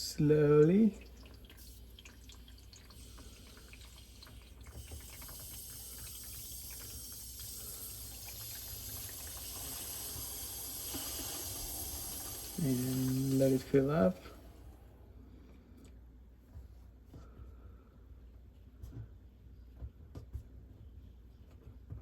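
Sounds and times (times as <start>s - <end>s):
water dripping: 0.0s - 14.4s
water hissing into filter: 0.0s - 14.8s.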